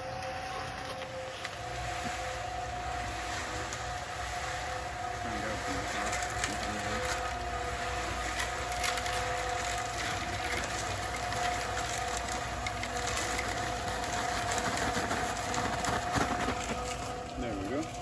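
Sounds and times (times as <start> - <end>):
concrete mixer motor whining: 0.0 - 18.0
gravel tumbling in drum: 5.1 - 18.0.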